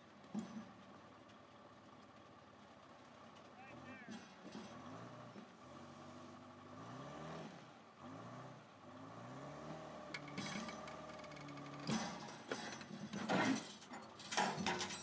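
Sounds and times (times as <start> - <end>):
excavator diesel engine revving: 3.7 - 13.2.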